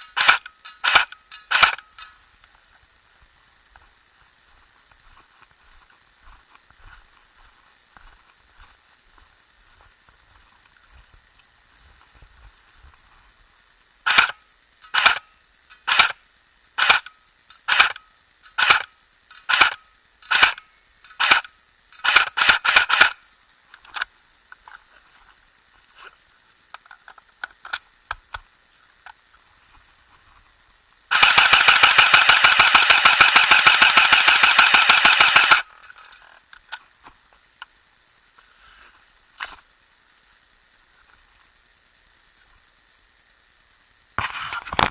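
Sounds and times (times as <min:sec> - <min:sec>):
airsoft shotgun firing: 0:31.1 - 0:35.6.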